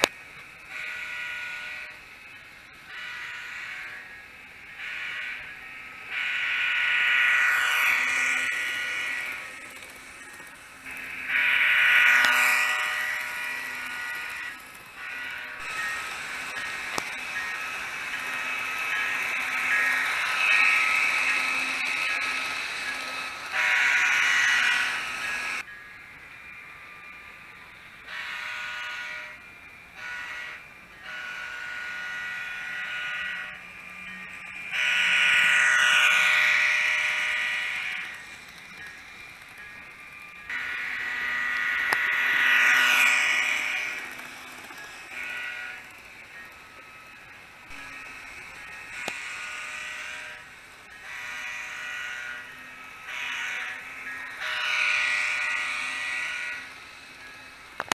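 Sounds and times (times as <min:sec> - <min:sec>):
model locomotive horn blasts: 0:00.0 - 0:02.1, 0:02.8 - 0:25.8, 0:28.0 - 0:39.0, 0:39.6 - 0:57.9.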